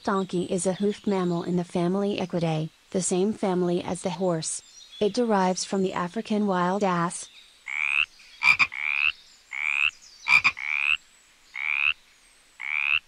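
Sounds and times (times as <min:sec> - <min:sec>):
frog croaking: 0:07.6 - 0:12.0, 0:12.6 - 0:13.0.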